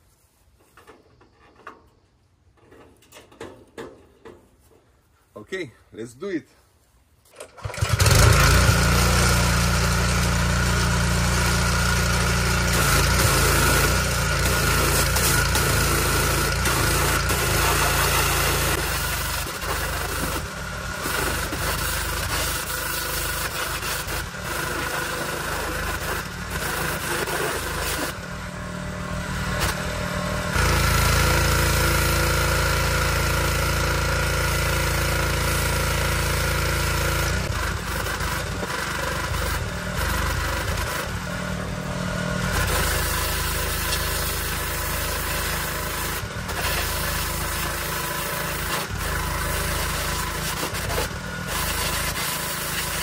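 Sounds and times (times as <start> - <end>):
pressure washer spray hissing: 42.7 - 53.0.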